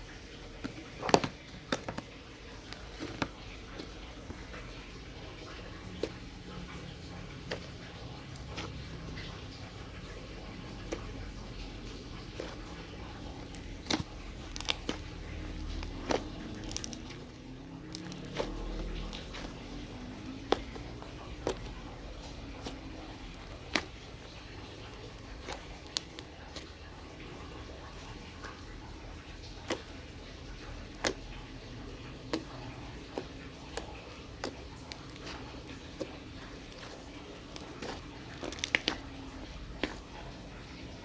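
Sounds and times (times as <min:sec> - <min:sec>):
slime sticky clicks and pops: 0:37.5 - 0:39.0.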